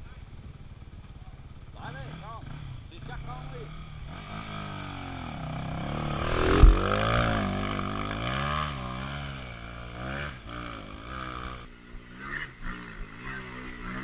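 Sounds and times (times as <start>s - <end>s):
dirt bike engine revving: 1.4s - 14.0s
hard thump: 6.4s - 7.0s.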